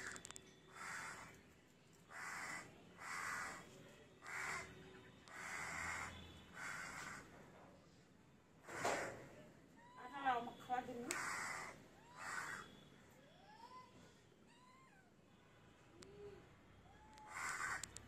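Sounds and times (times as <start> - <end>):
harsh bird calls: 0.0 - 1.4, 2.1 - 7.3, 11.1 - 12.8.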